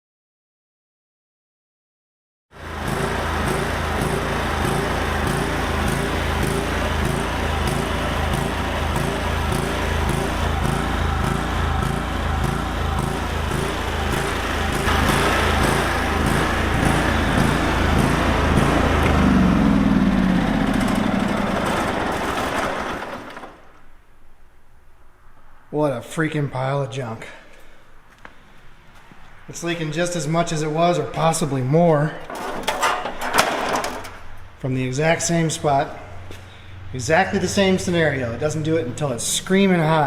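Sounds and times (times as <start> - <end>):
lawn tractor engine pulsing: 2.6 - 24.0.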